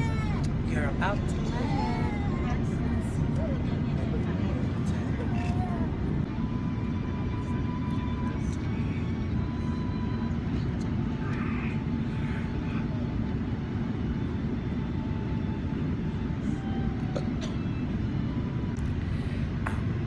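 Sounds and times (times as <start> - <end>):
jet airliner cabin drone: 0.0 - 20.0.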